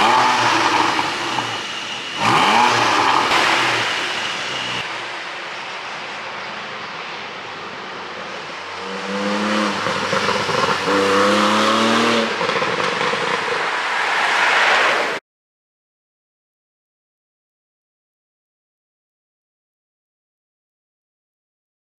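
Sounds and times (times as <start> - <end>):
car engine and exhaust: 0.0 - 15.2
road and tyre noise: 0.0 - 15.2.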